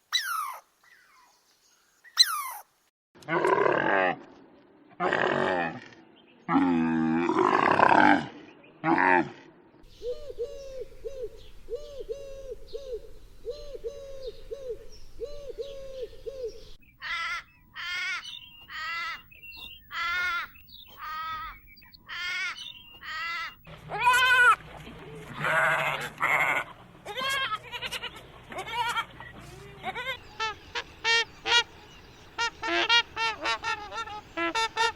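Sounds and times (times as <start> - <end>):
loud bleat-like animal calls: 25.3 - 30.5.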